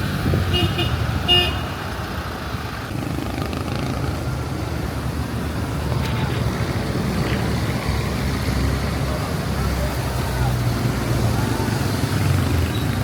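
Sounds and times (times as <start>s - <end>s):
vehicle engines running: 0.0s - 13.0s
car horn beep: 0.5s - 1.8s.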